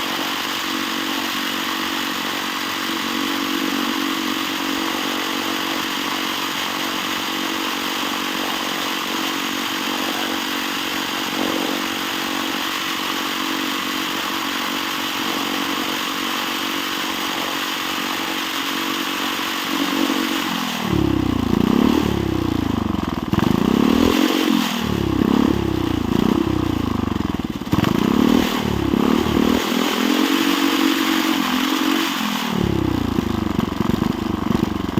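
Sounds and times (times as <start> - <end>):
engine revving: 0.0 - 34.9.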